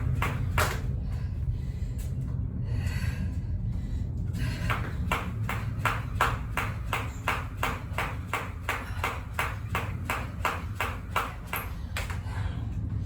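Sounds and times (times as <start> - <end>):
jump rope slapping the floor: 0.0 - 1.0, 4.5 - 12.4.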